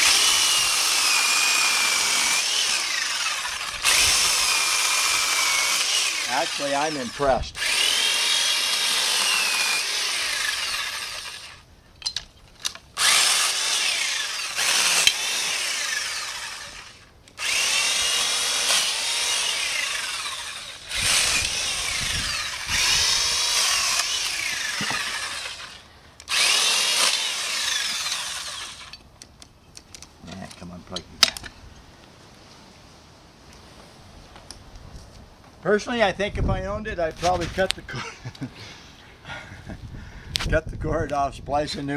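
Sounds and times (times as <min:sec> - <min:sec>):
small chainsaw cutting limbs: 0:00.0 - 0:11.6, 0:12.6 - 0:29.0.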